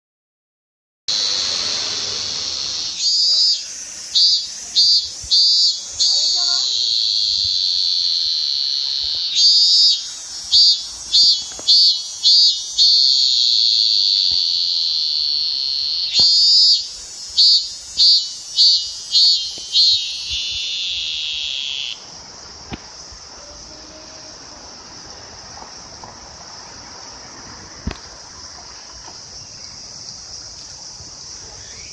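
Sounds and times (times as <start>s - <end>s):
cicada singing: 1.1s - 31.9s
faint cicada drone: 1.1s - 31.9s.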